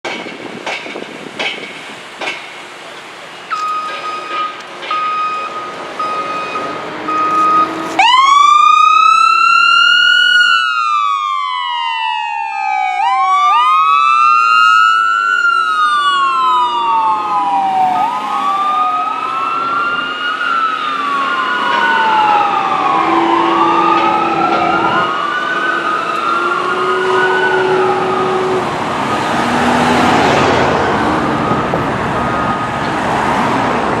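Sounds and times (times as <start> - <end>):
fire engine siren wailing: 3.5 - 34.0
second wailing siren tone: 3.6 - 29.3, 30.3 - 32.9
rushing noise: 15.8 - 34.0.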